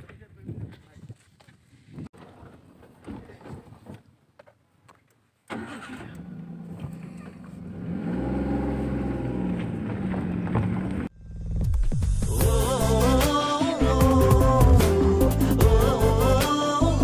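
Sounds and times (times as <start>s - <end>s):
car engine starting and revving: 5.5s - 11.1s.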